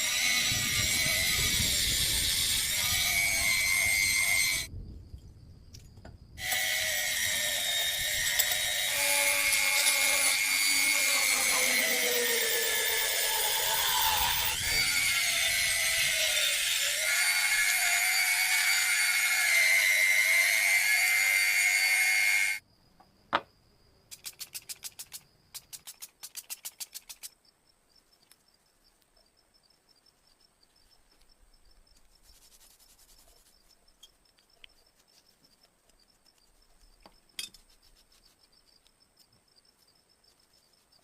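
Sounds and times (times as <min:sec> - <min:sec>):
grinding tool whine: 0:00.0 - 0:04.7, 0:06.4 - 0:22.6
rapid scraping ticks: 0:24.1 - 0:27.4.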